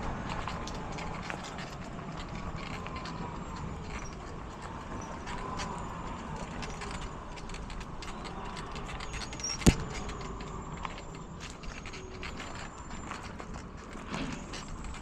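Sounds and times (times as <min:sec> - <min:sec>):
bicycle rattling and clicking: 0:00.0 - 0:15.0.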